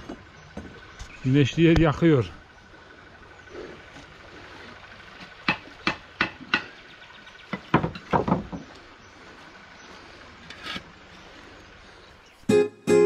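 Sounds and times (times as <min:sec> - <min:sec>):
masonry knocks: 0:07.5 - 0:08.6.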